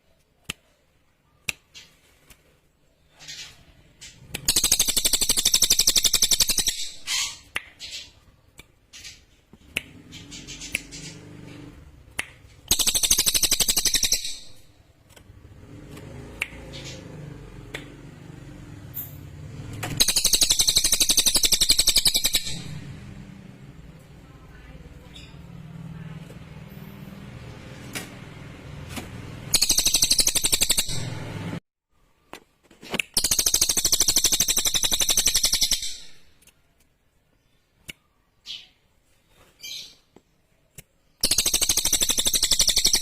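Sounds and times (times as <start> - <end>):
bird chips: 1.6 - 15.4, 20.0 - 22.9, 29.4 - 31.4
songbird trilling: 12.7 - 14.6, 20.0 - 22.8.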